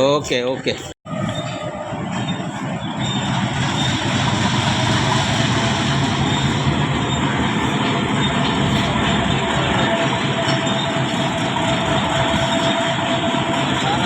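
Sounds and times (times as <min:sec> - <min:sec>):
diesel locomotive engine drone: 0:00.8 - 0:14.0
train rolling roar: 0:00.8 - 0:14.0.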